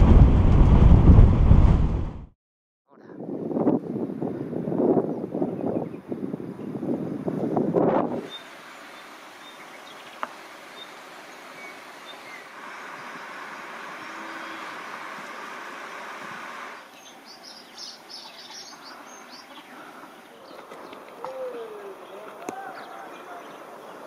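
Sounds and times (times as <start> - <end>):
steady outdoor hiss: 3.2 - 24.0
small birds chirping: 8.2 - 16.1, 16.8 - 24.0.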